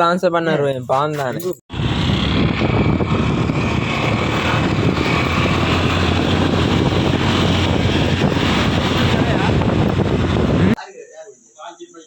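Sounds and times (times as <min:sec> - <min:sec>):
road noise: 0:01.7 - 0:10.8
vehicle engine rumble: 0:01.7 - 0:10.8
wind buffeting microphone: 0:01.7 - 0:10.8.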